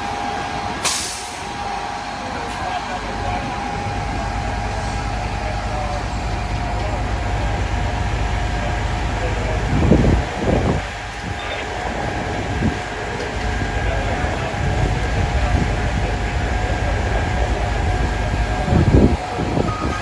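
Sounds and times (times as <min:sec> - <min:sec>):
diesel engine rumbling: 0:00.0 - 0:20.0
wind buffeting microphone: 0:09.3 - 0:20.0.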